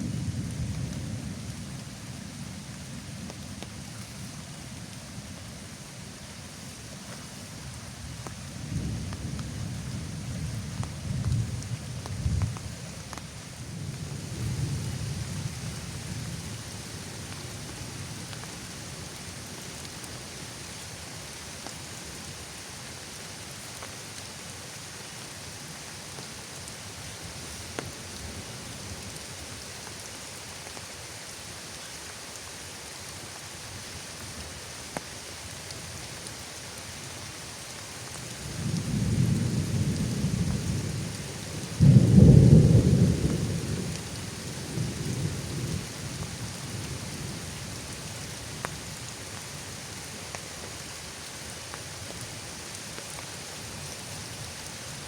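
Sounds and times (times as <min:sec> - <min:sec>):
steady rain: 0:00.0 - 0:55.0
thunder rumbling: 0:38.5 - 0:45.9.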